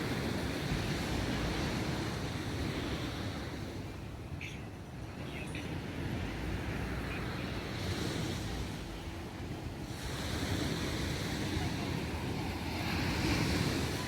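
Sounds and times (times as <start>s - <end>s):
sea waves breaking: 5.1s - 14.0s.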